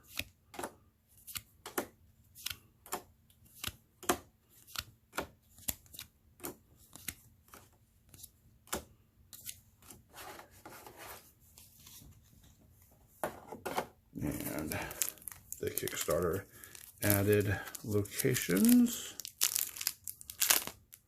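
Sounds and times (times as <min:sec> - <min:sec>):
cards rustling: 0:00.0 - 0:03.8, 0:14.2 - 0:21.0.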